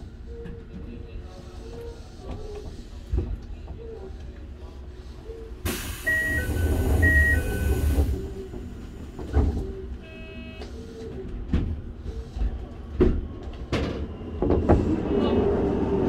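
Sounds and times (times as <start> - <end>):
low hum of train: 0.0 - 16.0
loud hiss of air: 5.7 - 6.8.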